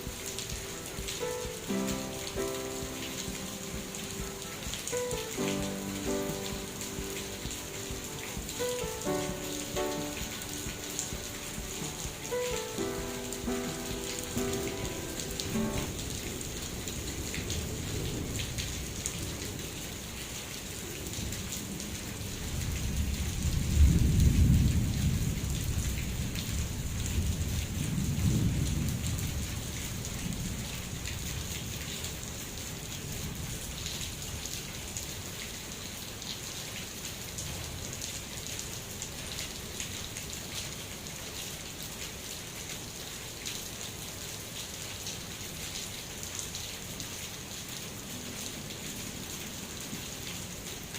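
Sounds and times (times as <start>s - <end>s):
rain falling: 0.0s - 50.9s
rolling thunder rumble: 22.6s - 31.1s.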